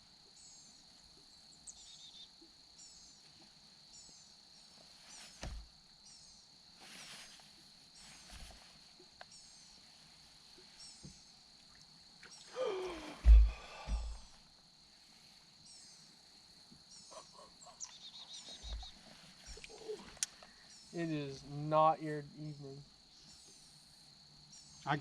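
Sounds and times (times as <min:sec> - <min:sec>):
soft low thumps: 0:13.0 - 0:14.4.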